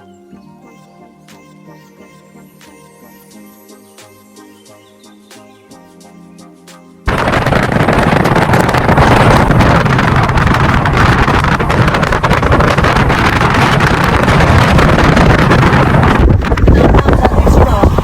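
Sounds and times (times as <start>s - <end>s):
moving vehicle rumble: 7.1s - 18.0s
wind buffeting microphone: 7.1s - 18.0s.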